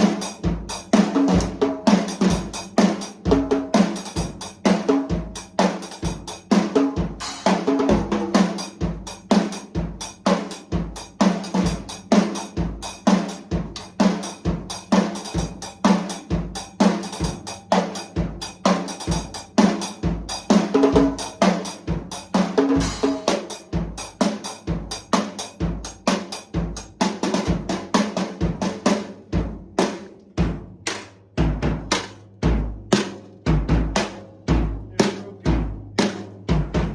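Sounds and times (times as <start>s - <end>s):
snare and cymbal hits: 0.0s - 36.9s
kick drum: 29.4s - 29.8s, 30.4s - 36.9s.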